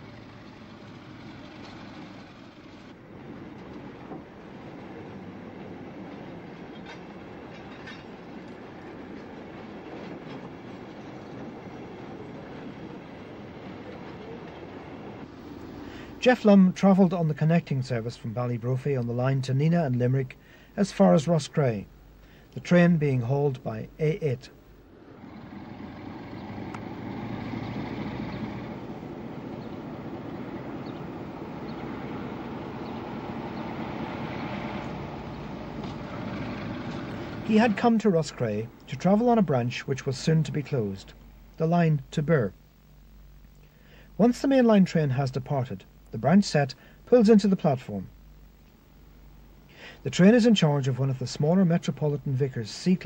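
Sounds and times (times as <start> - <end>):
wheels clicking over rail joints: 0.0 - 15.6
train rumbling: 0.0 - 15.8, 24.9 - 38.9.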